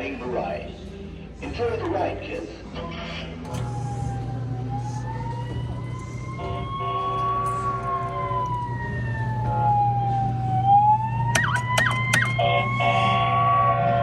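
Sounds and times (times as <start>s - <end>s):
steady low hum: 0.0s - 14.0s
siren sound effect wail: 3.8s - 14.0s.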